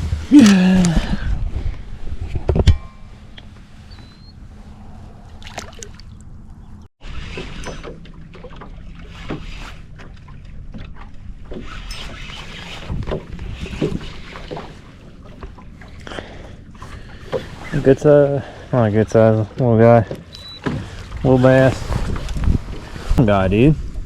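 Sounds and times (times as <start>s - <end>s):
wind on microphone: 0.0s - 3.1s, 21.3s - 24.0s.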